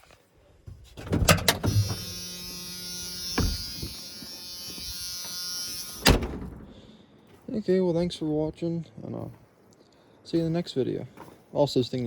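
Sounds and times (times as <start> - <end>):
electric buzz with high hiss: 1.7 - 6.3.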